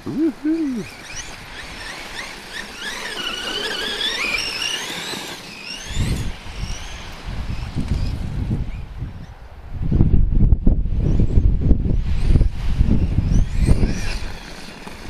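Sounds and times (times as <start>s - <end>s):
electric motor whine: 0.0s - 8.2s
wind buffeting microphone: 5.8s - 15.0s.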